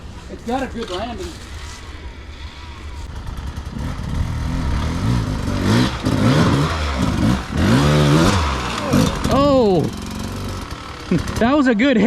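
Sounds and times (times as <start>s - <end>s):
dirt bike engine revving: 0.4s - 12.0s.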